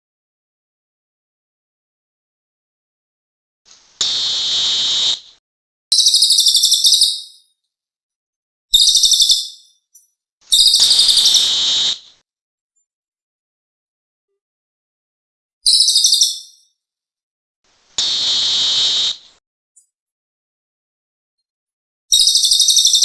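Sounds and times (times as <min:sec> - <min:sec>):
bird high rapid trills: 0:10.5 - 0:12.1, 0:18.0 - 0:19.4.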